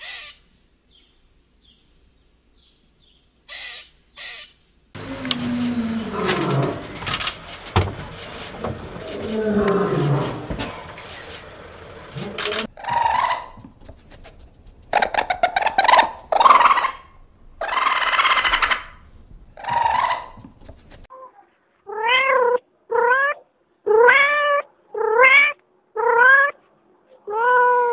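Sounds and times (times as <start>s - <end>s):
raccoon hissing snarl: 5.0s - 12.7s
raccoon chattering clicks: 10.6s - 14.0s, 14.8s - 17.0s
cat meowing: 27.2s - 27.9s.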